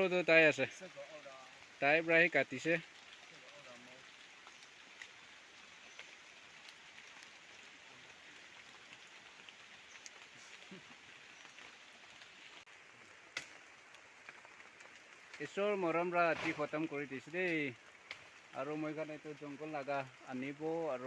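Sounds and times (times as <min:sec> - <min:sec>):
faint outdoor hiss: 0:00.0 - 0:21.0
small ticks: 0:02.9 - 0:12.4.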